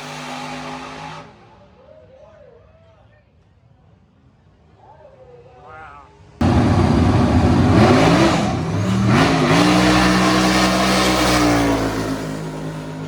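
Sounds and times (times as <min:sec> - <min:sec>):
car engine accelerating: 0:06.4 - 0:13.0.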